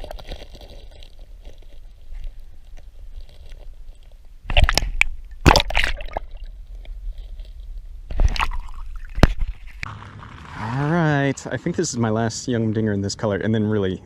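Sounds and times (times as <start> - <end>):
water splashing and sloshing: 0.0 - 9.9.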